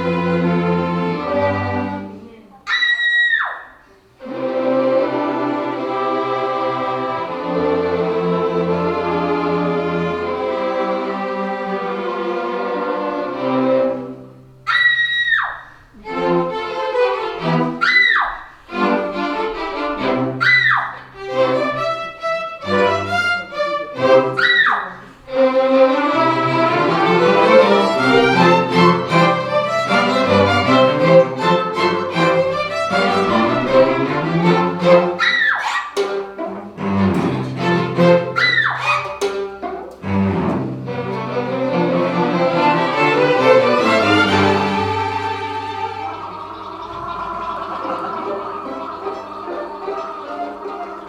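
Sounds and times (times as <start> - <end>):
string orchestra playing: 0.0 - 2.6, 4.1 - 14.8, 15.8 - 51.0.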